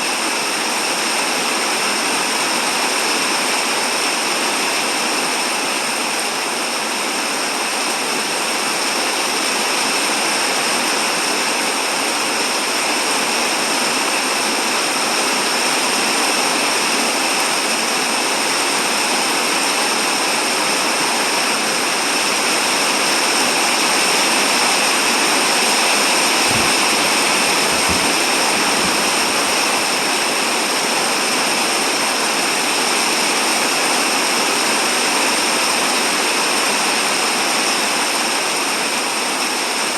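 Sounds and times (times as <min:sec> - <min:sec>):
steady rain falling: 0:00.0 - 0:39.9
faint low bumps: 0:26.0 - 0:30.0.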